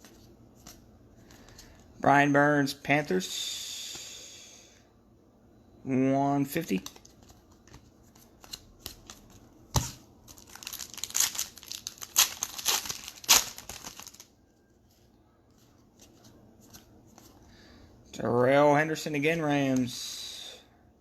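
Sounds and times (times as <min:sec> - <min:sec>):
wrapper snap: 0:09.8 - 0:14.2
wrapper tearing and crinkling: 0:10.3 - 0:14.3.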